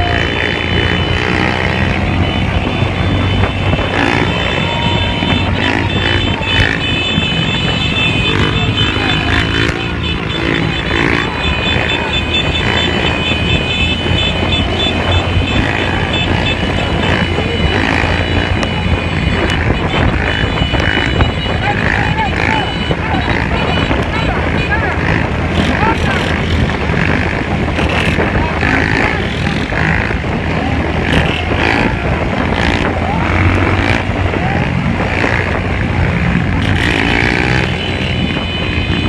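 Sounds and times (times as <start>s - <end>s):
motorcycle engines revving: 0.0s - 39.0s.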